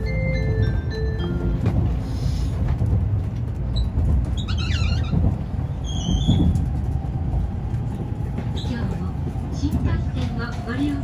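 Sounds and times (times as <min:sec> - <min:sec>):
train cabin low rumble: 0:00.0 - 0:11.0
short high squeaks: 0:03.8 - 0:05.2.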